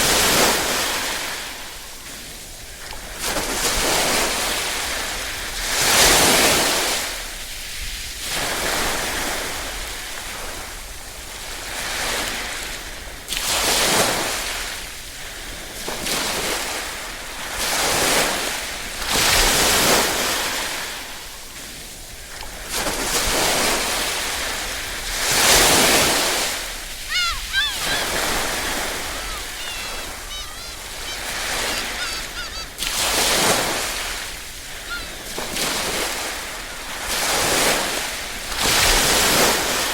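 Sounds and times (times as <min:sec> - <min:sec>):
small waves washing onto shore: 0:00.0 - 0:39.9
birds calling: 0:26.6 - 0:37.2.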